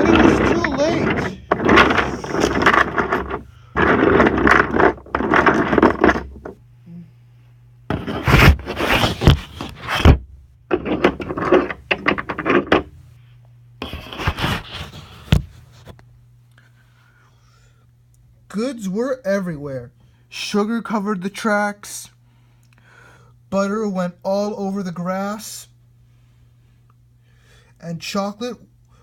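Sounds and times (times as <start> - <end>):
toy train rattling on wooden track: 0.0 - 6.5
toy trucks crashing together: 0.0 - 6.6.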